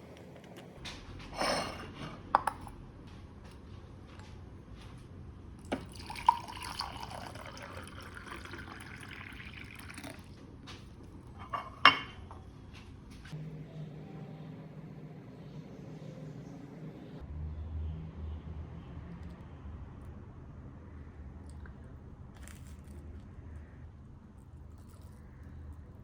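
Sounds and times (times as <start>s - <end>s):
dishes and glass clinking: 1.4s - 2.8s, 11.4s - 12.5s
liquid pouring: 5.6s - 10.4s.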